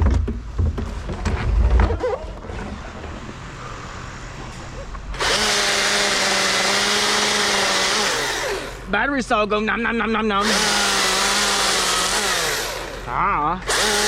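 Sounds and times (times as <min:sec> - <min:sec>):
low rumbling and knocks: 0:00.0 - 0:03.5
battery chainsaw running: 0:05.2 - 0:09.0, 0:10.4 - 0:14.0.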